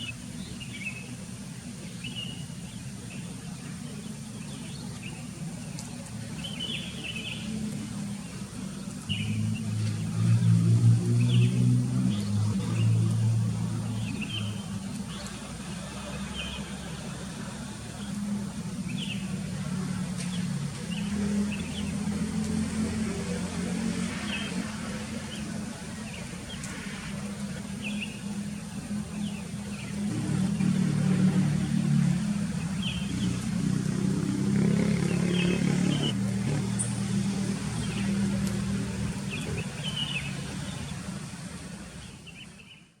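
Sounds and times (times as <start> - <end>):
motor engine drone: 5.3 - 41.6.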